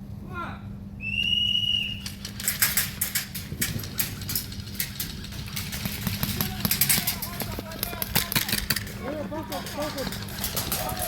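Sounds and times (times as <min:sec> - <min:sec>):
steady low hum: 0:00.0 - 0:11.0
whistle blowing: 0:01.0 - 0:02.1.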